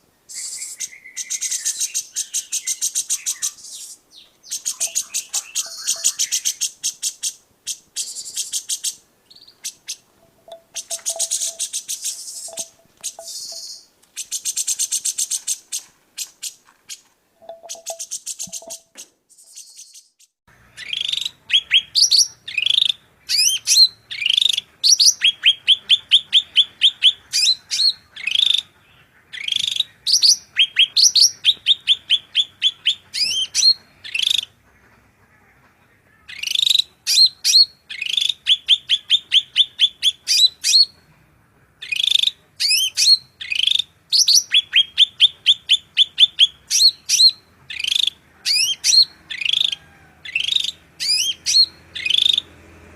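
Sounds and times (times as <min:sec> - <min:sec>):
songbird singing: 0:00.0 - 0:52.9.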